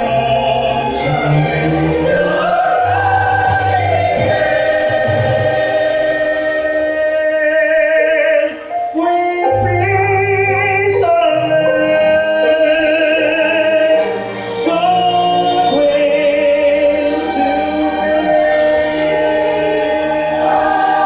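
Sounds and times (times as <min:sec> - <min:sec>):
children's choir singing: 0:00.0 - 0:07.4, 0:12.5 - 0:21.0
string orchestra: 0:00.0 - 0:21.0.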